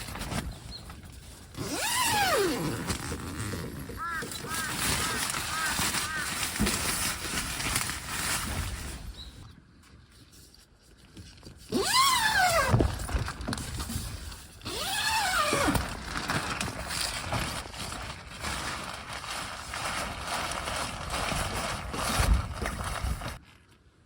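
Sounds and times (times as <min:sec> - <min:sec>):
animal calling: 0:03.9 - 0:06.5.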